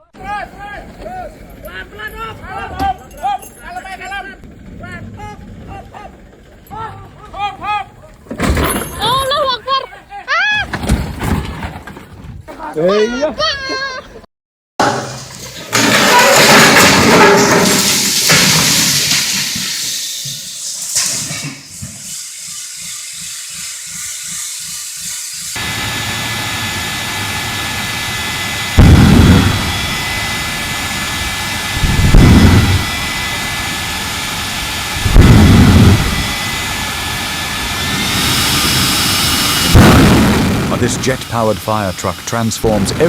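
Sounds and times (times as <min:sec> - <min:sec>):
jet engine hiss and whine: 0:24.6 - 0:43.0
loud rushing noise: 0:25.6 - 0:43.0
low pulsing: 0:25.6 - 0:43.0.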